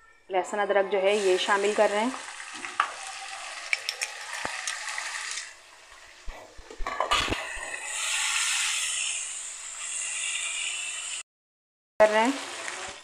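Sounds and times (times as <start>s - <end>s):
onions sizzling in oil: 1.1s - 6.3s, 7.5s - 11.2s, 12.0s - 13.0s
spatula scraping a pan: 6.3s - 11.2s.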